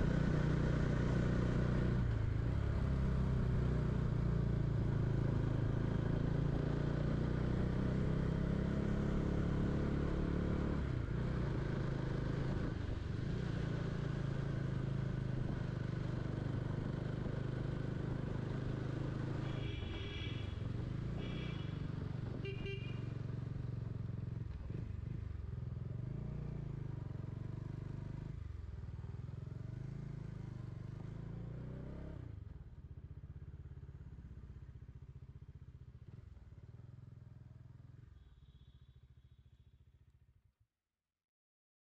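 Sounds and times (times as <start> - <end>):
motorcycle engine running: 0.0 - 31.2.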